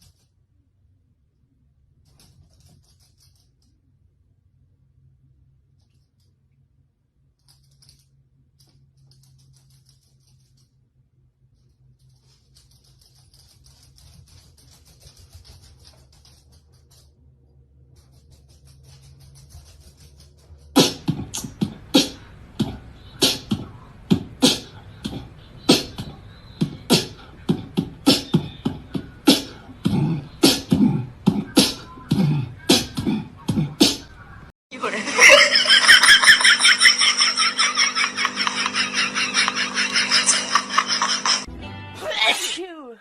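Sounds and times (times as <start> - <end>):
beatbox-style beat: 20.8 - 34.4.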